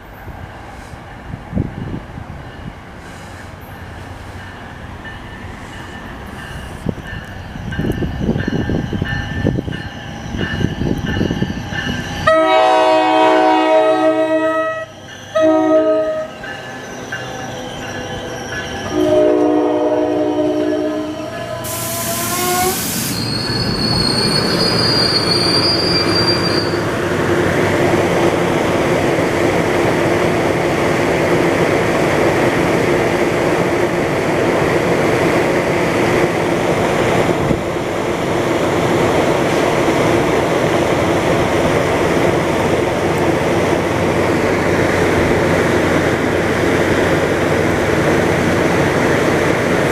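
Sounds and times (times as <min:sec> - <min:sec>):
train engine and wheels rumbling: 0:00.0 - 0:49.9
air hiss: 0:03.0 - 0:04.4, 0:21.6 - 0:23.4
high-pitched brake squeal: 0:05.4 - 0:12.5, 0:14.5 - 0:19.5, 0:20.6 - 0:27.0
train air horn: 0:12.2 - 0:16.4, 0:18.9 - 0:23.3.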